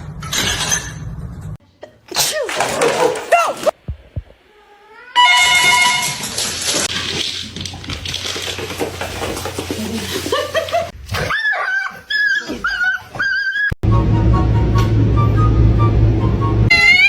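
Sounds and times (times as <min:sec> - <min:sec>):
noisy rustling: 0:05.9 - 0:11.0
pet whining: 0:11.2 - 0:13.8.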